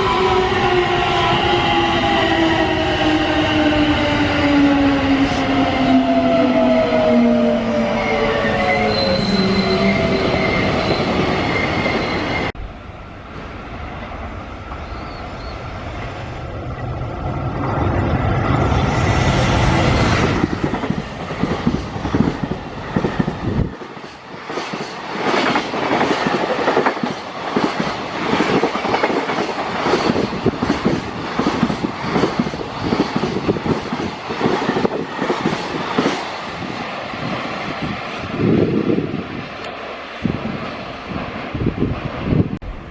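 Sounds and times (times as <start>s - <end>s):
freight train rumble: 0.0s - 42.9s
train wheels clacking over rail joints: 20.3s - 36.3s.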